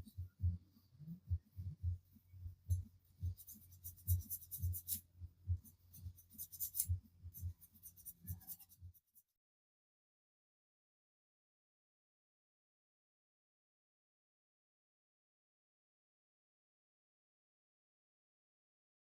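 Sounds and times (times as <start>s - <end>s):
file rasping on metal: 3.4s - 5.0s, 6.0s - 8.8s.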